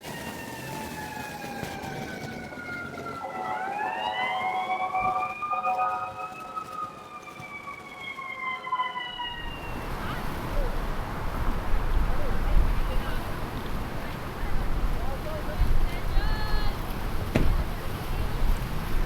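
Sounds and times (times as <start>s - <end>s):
emergency vehicle siren: 0.0s - 11.6s.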